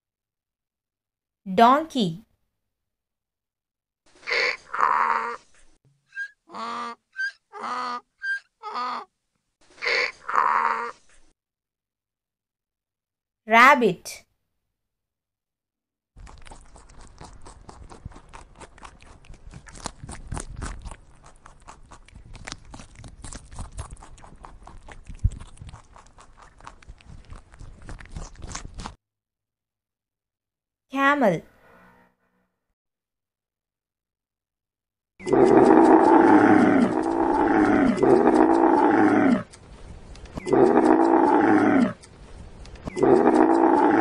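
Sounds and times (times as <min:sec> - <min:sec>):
rabbit chewing grass: 0:16.2 - 0:29.0, 0:35.3 - 0:44.0
camel calling: 0:35.2 - 0:39.6, 0:40.3 - 0:42.1, 0:42.8 - 0:44.0.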